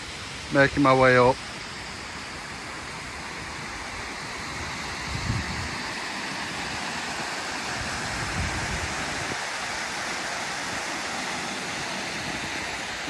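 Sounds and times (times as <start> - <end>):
fast river rushing: 0.0 - 13.0
wind buffeting microphone: 4.6 - 6.0, 7.7 - 9.5.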